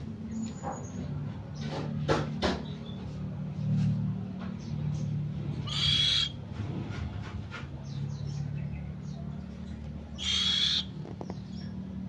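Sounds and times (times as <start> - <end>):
owl hissing: 5.6 - 6.4, 10.2 - 11.0.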